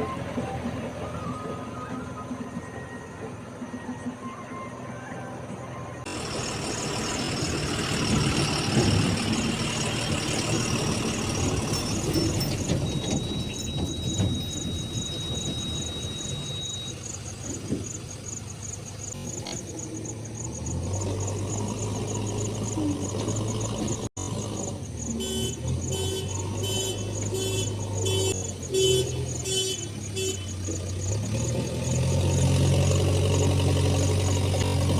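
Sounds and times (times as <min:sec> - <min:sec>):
steady high squeal: 0:00.0 - 0:32.0
diesel engine running: 0:00.0 - 0:34.9.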